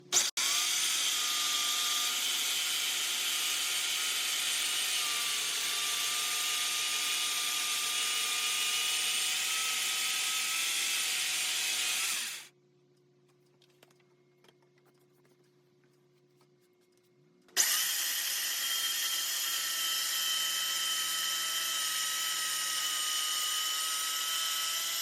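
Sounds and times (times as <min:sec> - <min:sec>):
circular saw cutting wood: 0:00.0 - 0:12.5, 0:17.6 - 0:25.0.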